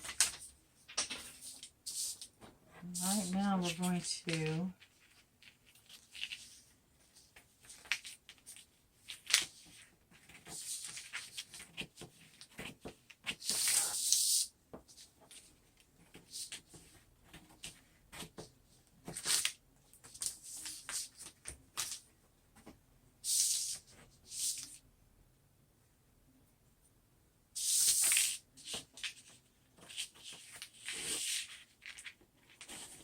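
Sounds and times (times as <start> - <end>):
vinyl sheets rustling: 0.0 - 14.2
paper scraping: 1.1 - 6.7.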